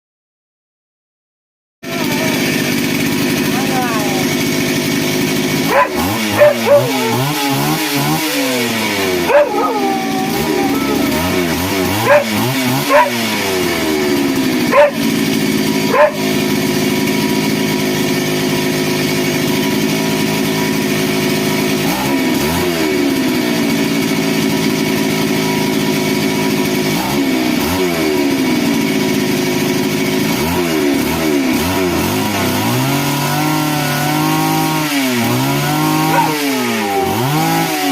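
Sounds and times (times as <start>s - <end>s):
engine revving: 1.9s - 37.9s
dog barking: 5.7s - 13.3s, 14.7s - 15.0s, 15.9s - 16.3s, 35.6s - 37.5s.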